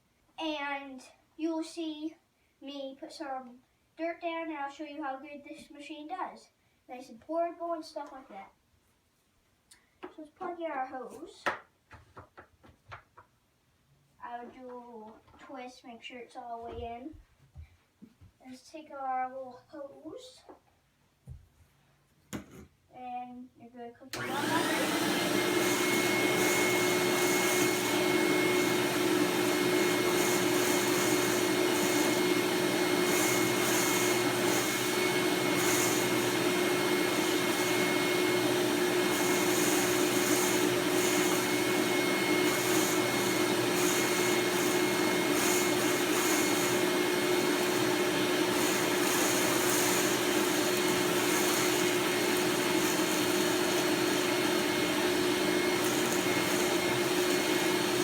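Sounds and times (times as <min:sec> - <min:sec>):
vacuum cleaner motor running: 0:24.2 - 0:58.0.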